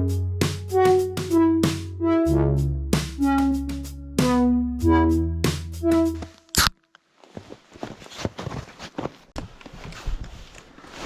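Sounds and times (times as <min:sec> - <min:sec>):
background music: 0:00.0 - 0:06.3
footsteps crunching in snow: 0:07.2 - 0:09.3.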